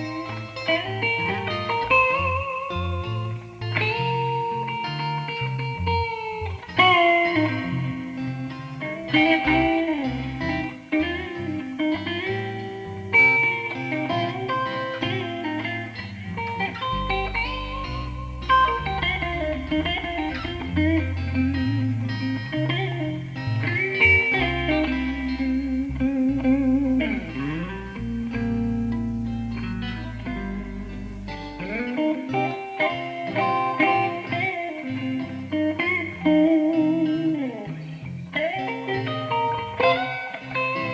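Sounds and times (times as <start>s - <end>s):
electric guitar blues lead: 0.0s - 40.9s
low bass part: 16.8s - 32.2s.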